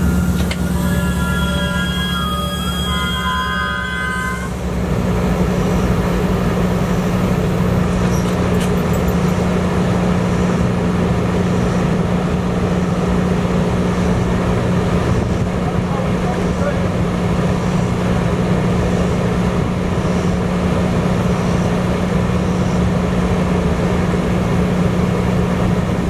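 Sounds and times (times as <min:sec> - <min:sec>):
train idling hum and rumble: 0:00.0 - 0:26.0.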